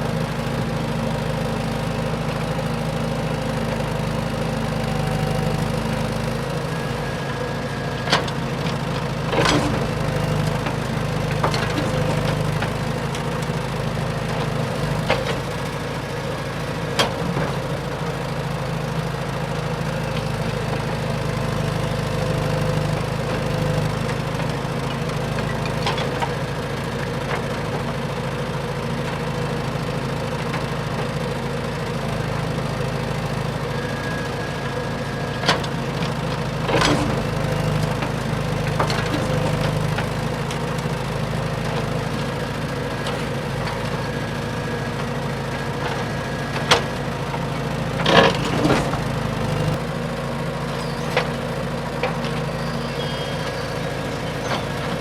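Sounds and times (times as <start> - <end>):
toy truck motor drone: 52.4 - 55.0.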